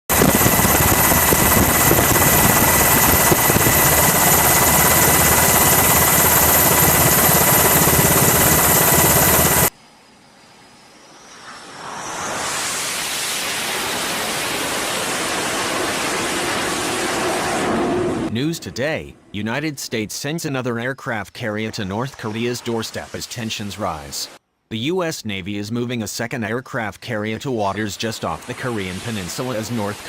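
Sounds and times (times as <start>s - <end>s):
aircraft chopping and whining: 0.1s - 9.7s, 10.6s - 19.4s
steady rushing noise: 10.9s - 18.5s, 28.2s - 30.0s.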